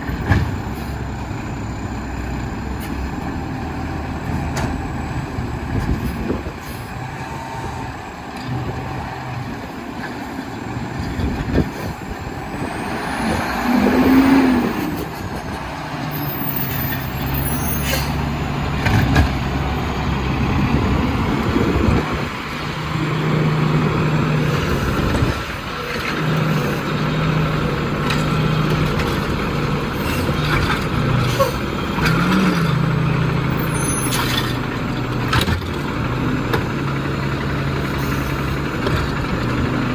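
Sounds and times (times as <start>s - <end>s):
diesel engine running: 0.0s - 39.9s
air brakes hissing: 16.0s - 18.4s, 31.2s - 31.7s, 33.5s - 34.6s, 37.8s - 38.6s.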